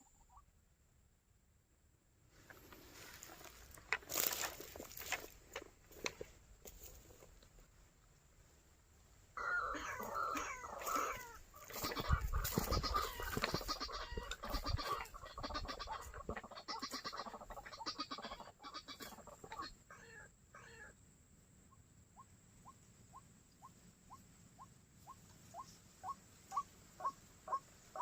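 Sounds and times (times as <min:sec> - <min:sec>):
rustling: 0:02.3 - 0:09.2, 0:09.8 - 0:17.2
bird croaking calls: 0:09.4 - 0:21.0, 0:22.2 - 0:28.0.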